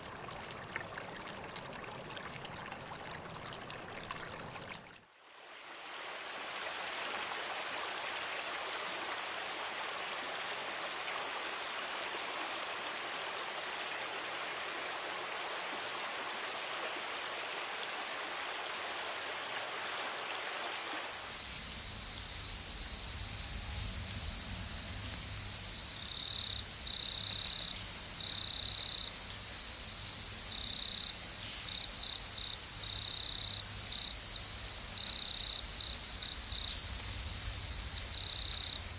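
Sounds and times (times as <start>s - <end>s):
stream water running: 0.0s - 24.1s
insect chorus: 5.2s - 38.9s.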